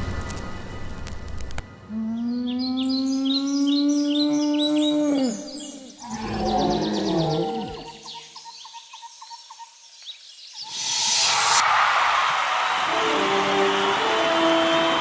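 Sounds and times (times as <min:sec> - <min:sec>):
low animal bellow: 0:01.9 - 0:08.0
loud rush of noise: 0:10.6 - 0:15.0
held musical tone: 0:12.9 - 0:15.0.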